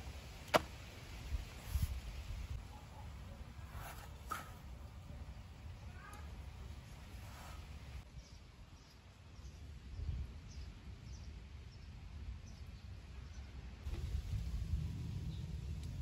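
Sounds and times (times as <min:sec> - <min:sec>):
low steady rumble: 0:13.9 - 0:16.0.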